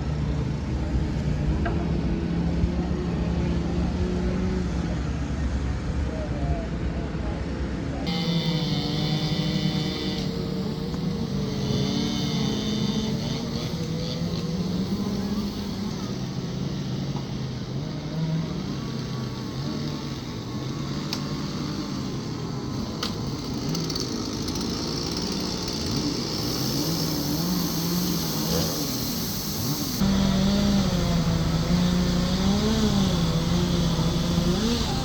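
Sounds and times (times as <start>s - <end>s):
chainsaws revving: 8.1s - 35.0s.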